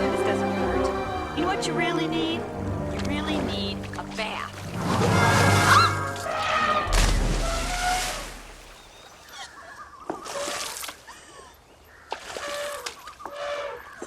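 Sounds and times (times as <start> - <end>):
faint orchestral film music: 0.0 - 8.0
water splashing in gushes: 2.6 - 9.0, 10.1 - 11.4, 12.0 - 13.4.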